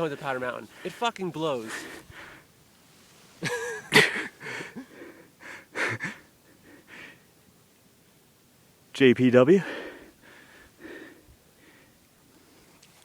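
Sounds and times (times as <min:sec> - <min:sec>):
man wheezing laughter: 0:03.4 - 0:06.3.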